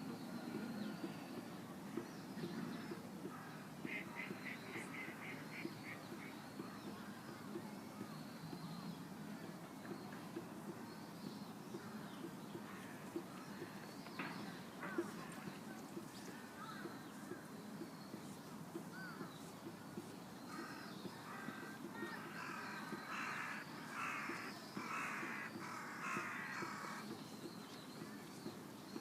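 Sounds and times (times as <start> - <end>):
outdoor background noise: 0.0 - 29.0
crow cawing: 20.5 - 27.1.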